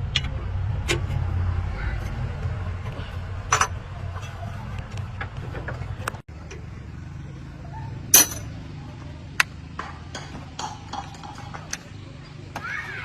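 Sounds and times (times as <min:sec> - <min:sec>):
steady low hum: 0:00.0 - 0:12.4
sharp clinks and knocks: 0:08.1 - 0:08.5.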